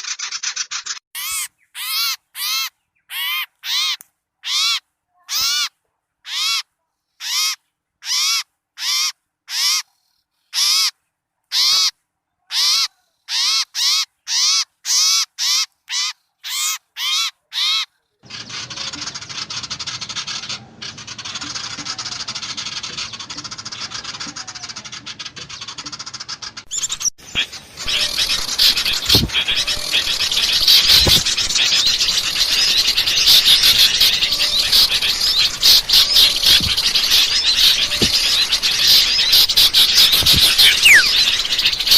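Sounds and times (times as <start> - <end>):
chatter of many small birds: 18.2 - 41.9
harsh scolding bird call: 26.7 - 41.9.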